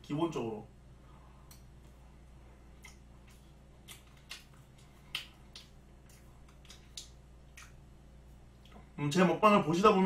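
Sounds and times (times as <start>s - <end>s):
faint low hum: 0.0s - 10.0s
wet chewing mouth sounds: 2.8s - 7.8s.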